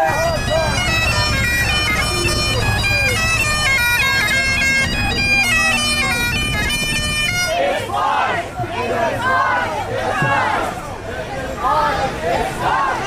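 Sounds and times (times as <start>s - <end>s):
bagpipes playing a quick melody: 0.0s - 7.6s
low crowd rumble: 0.0s - 13.0s.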